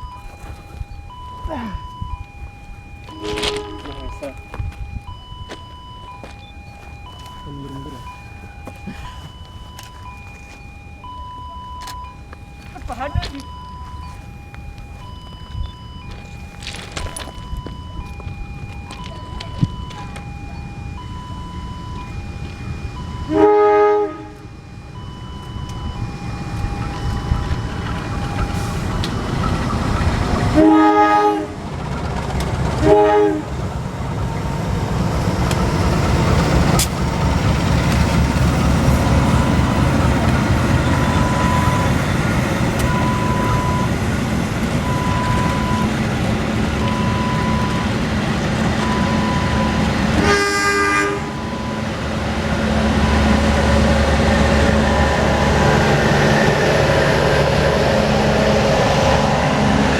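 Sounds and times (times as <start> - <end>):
locomotive horn blasts: 3.1 - 4.2, 23.2 - 24.6, 30.5 - 31.6, 32.7 - 33.6, 49.0 - 51.9
faint short electronic beeps: 3.1 - 12.2
train rumbling past: 14.7 - 59.9.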